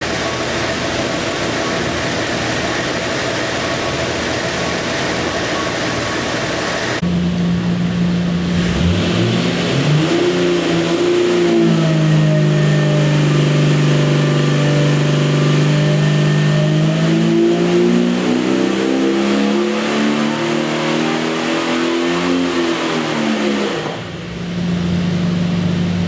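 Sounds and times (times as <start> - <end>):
engine revving under load: 8.1 - 26.0.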